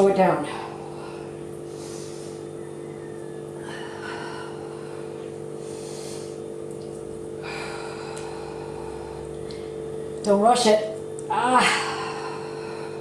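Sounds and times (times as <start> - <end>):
steady electrical hum: 0.0 - 13.0
woman breathing hard: 0.5 - 2.7, 3.6 - 6.5, 7.4 - 9.8, 11.6 - 13.0.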